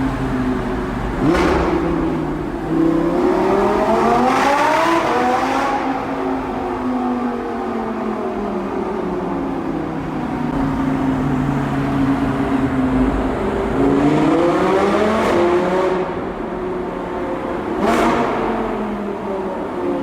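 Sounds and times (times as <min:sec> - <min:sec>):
exhaust crack: 0:00.0 - 0:03.7
sports car engine accelerating: 0:00.0 - 0:20.0.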